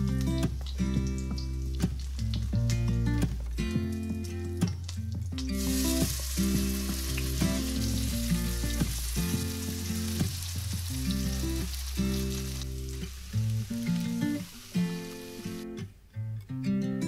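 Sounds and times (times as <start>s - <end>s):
background music: 0.0s - 15.8s
pancakes sizzling in frying pan: 5.4s - 15.6s.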